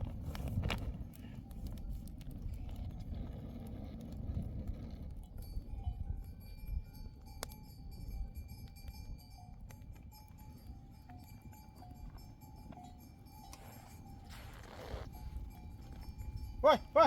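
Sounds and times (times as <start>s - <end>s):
livestock bells clinking: 5.3s - 17.0s.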